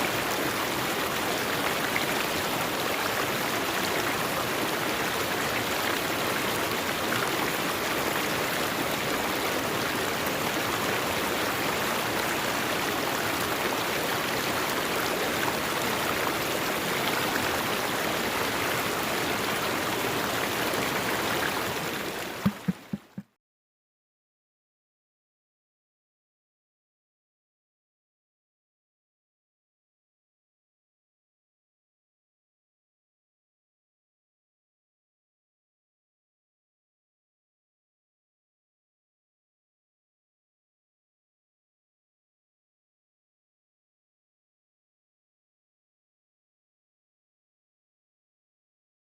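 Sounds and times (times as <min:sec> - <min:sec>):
river water rushing: 0:00.0 - 0:23.2
short knocks: 0:22.4 - 0:23.2.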